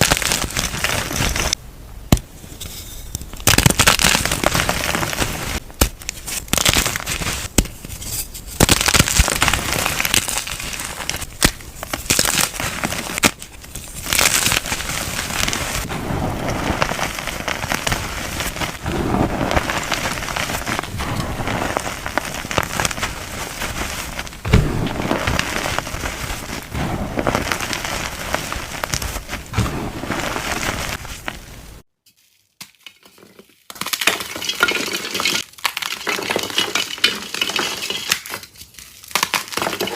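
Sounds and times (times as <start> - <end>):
chalk pieces being crushed: 3.4 - 15.9, 16.6 - 31.4.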